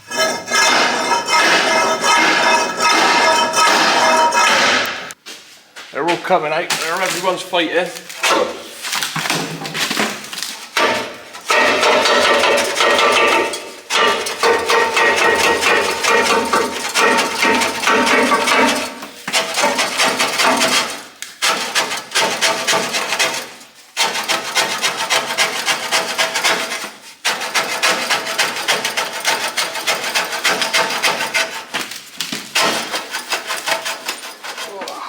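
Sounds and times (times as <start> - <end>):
rapid metal-on-metal striking: 0.0 - 5.2, 10.8 - 19.0.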